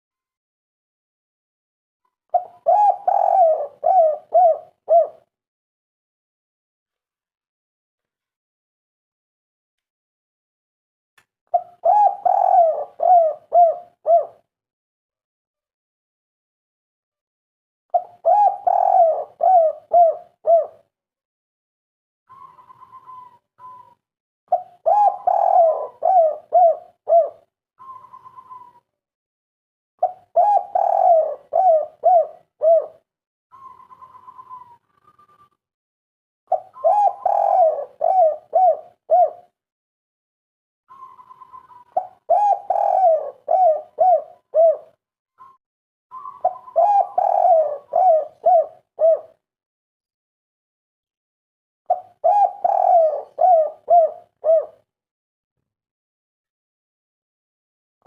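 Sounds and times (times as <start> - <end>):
dove cooing: 2.3 - 5.3, 11.5 - 14.4, 17.9 - 20.8, 22.3 - 28.8, 30.0 - 35.5, 36.5 - 39.6, 40.9 - 45.0, 46.1 - 49.4, 51.9 - 54.9.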